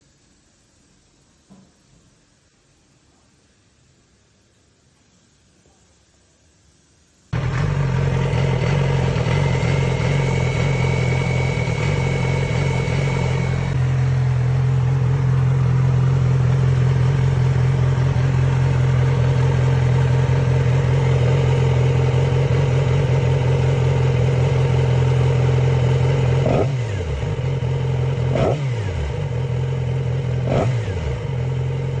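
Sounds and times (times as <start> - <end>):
motorcycle engine fast idle: 7.4 - 32.0.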